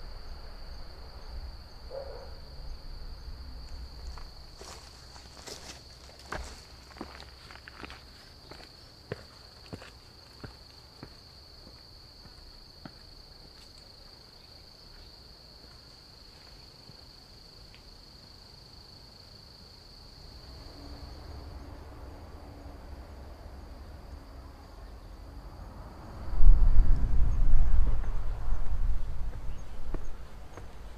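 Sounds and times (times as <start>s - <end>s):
wind buffeting microphone: 25.9s - 30.9s.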